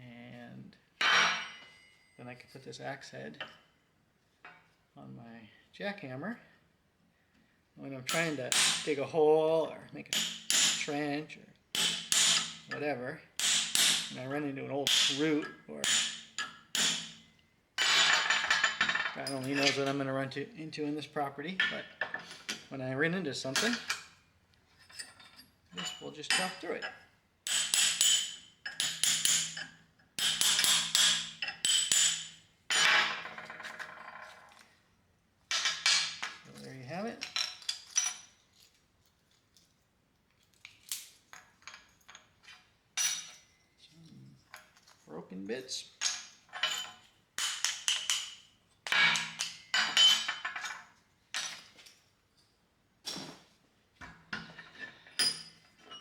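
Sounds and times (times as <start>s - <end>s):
steel pieces clinking: 10.1s - 11.0s, 11.8s - 12.8s, 13.4s - 20.1s, 24.8s - 34.6s, 35.5s - 38.8s, 40.4s - 45.0s, 45.9s - 52.5s, 54.4s - 56.0s
heavy steel tools clanking: 17.8s - 20.1s, 24.9s - 33.9s, 54.4s - 56.0s.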